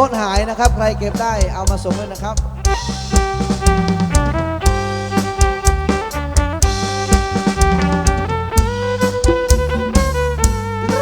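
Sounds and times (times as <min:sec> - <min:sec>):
heavy bass: 0:00.0 - 0:11.0
steady drum beat: 0:00.0 - 0:11.0
held-note melody line: 0:05.5 - 0:11.0.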